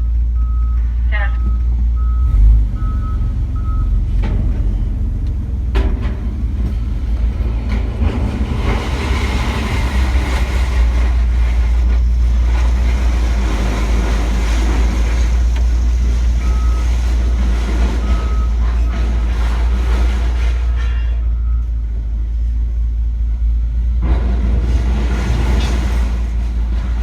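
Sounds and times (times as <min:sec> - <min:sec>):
reversing beeps: 0:00.0 - 0:04.1, 0:16.1 - 0:19.3, 0:20.6 - 0:21.9
heavy vehicle engine rumbling: 0:00.0 - 0:27.0
metal clanks: 0:04.1 - 0:13.0
scrap metal rattling: 0:04.1 - 0:21.3, 0:24.0 - 0:27.0.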